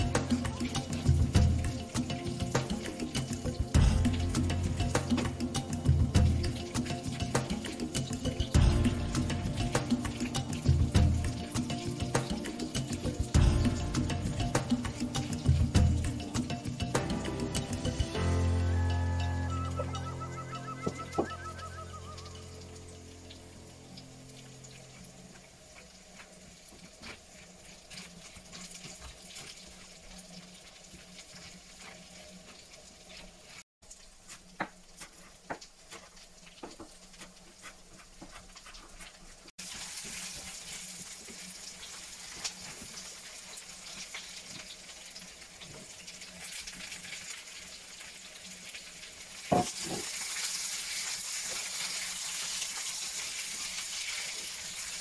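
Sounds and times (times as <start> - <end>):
onions sizzling in oil: 0.0 - 55.0
vegetables knocking into pan: 49.5 - 50.1.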